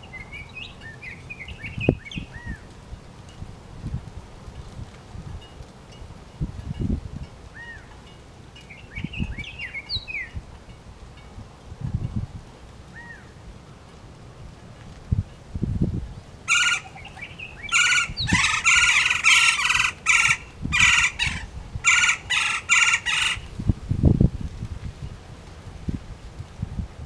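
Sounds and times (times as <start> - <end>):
bird harsh calls: 16.5 - 23.5.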